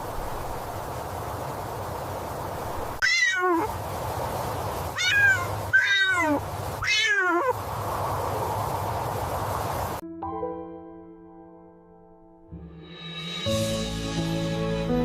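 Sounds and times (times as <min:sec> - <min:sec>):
cat meowing: 0:03.0 - 0:03.7, 0:04.9 - 0:07.6.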